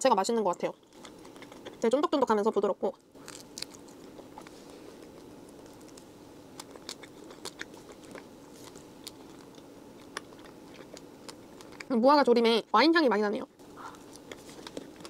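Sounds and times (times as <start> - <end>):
low background hum: 0.0 - 15.0
person chewing bread: 0.8 - 1.9, 2.9 - 11.9, 13.6 - 15.0.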